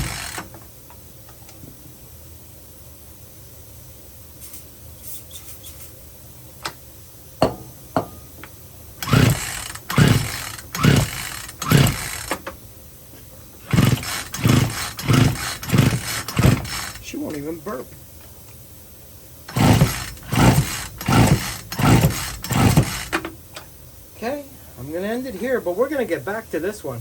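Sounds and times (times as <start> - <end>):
chainsaw recoil starter pulls: 0.0 - 0.5, 9.0 - 12.5, 13.7 - 17.5, 19.5 - 23.3.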